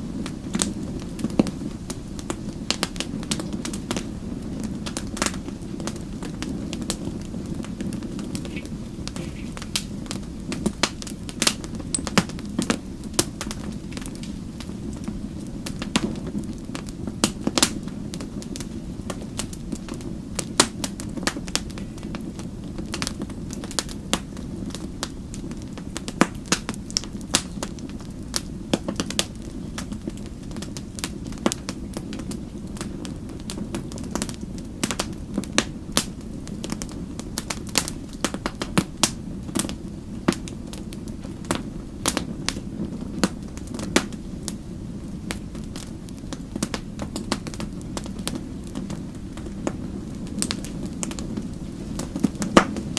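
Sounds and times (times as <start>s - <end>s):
wood fire crackling: 0.0s - 52.9s.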